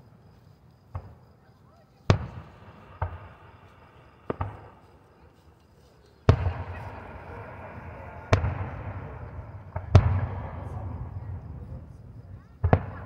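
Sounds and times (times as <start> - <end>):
distant firework booms: 2.0 - 5.1, 6.2 - 13.0
firework crackle: 2.1 - 12.0.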